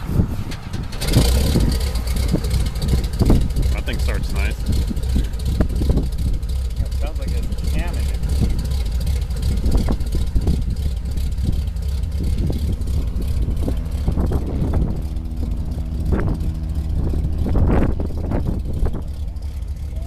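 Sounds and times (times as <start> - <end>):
propeller aircraft engine drone: 0.0 - 20.0.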